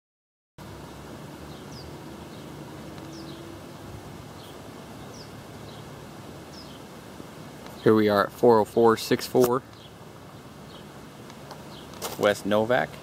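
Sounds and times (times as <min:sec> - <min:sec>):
steady background hiss: 0:00.6 - 0:13.0
bird chirping: 0:01.4 - 0:06.9, 0:09.6 - 0:12.0.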